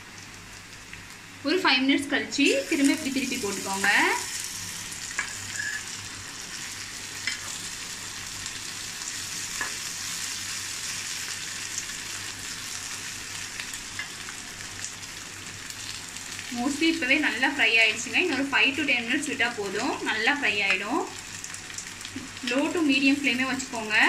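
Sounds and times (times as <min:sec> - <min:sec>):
root pieces sizzling in oil: 0:00.0 - 0:24.0
steel spatula scraping pan: 0:05.2 - 0:05.9.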